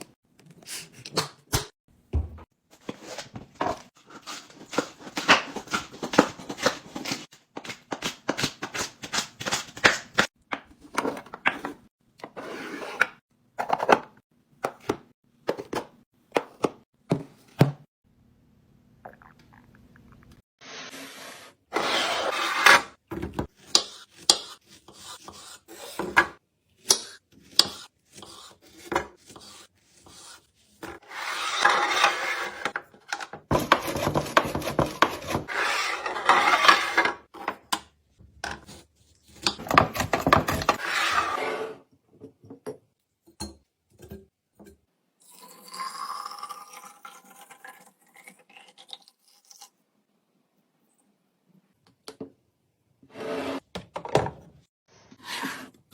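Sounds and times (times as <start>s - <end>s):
packaging rustling and scraping: 2.7s - 10.2s, 39.6s - 41.6s.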